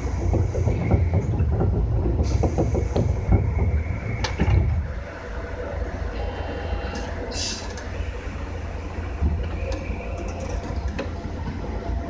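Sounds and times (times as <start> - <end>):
knocks and rattles: 0.0 - 5.1
train cab rumble: 0.0 - 12.0.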